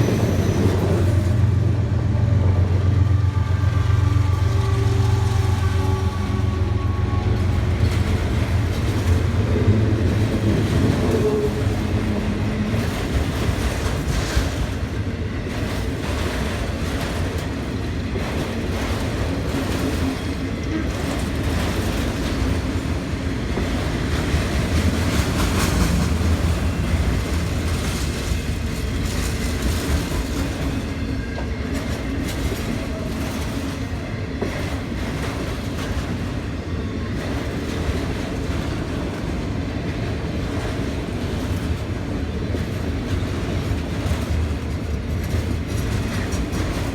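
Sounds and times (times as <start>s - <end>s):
freight train rumbling past: 0.0s - 46.9s
wheels clacking over rail joints: 7.2s - 36.6s, 37.2s - 46.9s.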